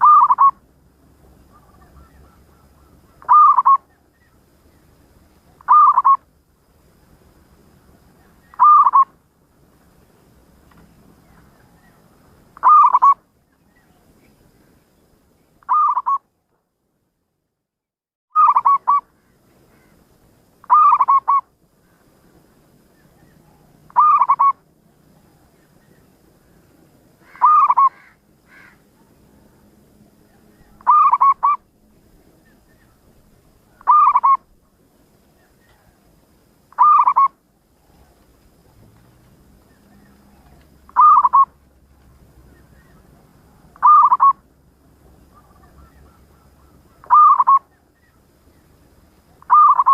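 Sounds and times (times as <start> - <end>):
dove cooing: 0.0 - 0.6, 1.4 - 4.0, 5.5 - 6.2, 8.4 - 9.1, 12.6 - 13.2, 15.7 - 16.2, 18.4 - 19.0, 20.6 - 21.4, 23.2 - 24.6, 27.2 - 29.2, 30.3 - 31.7, 33.7 - 34.5, 36.7 - 38.2, 39.7 - 41.6, 42.6 - 44.5, 45.1 - 48.3, 49.4 - 49.9.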